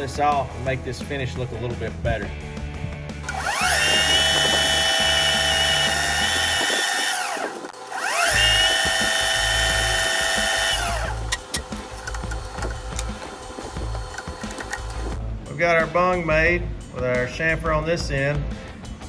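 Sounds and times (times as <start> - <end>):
lathe whining: 3.2 - 15.2
sanding spinning part: 3.2 - 15.2.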